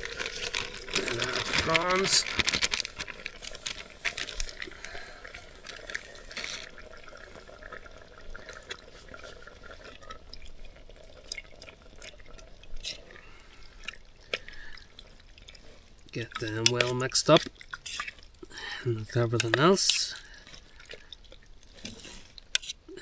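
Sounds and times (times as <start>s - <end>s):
sharp crackles and clicks: 0.0s - 13.1s
pan bubbling and sizzling: 0.0s - 23.0s.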